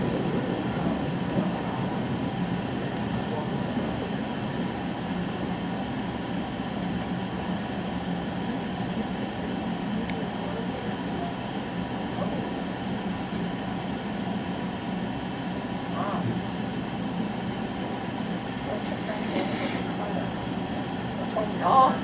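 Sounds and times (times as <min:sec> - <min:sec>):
train rumbling inside coach: 0:00.0 - 0:22.0.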